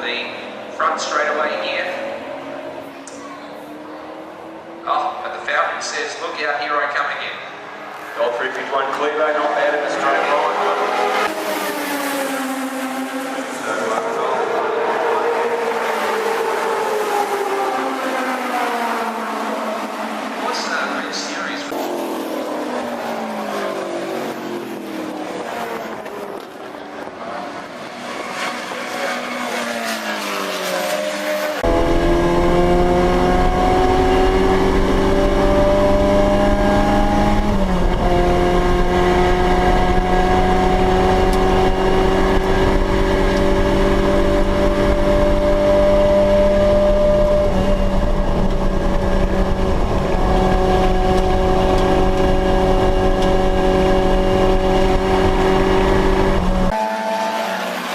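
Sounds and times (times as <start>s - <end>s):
racing cars passing: 0.0s - 57.9s
steady climbing engine note: 30.9s - 57.9s.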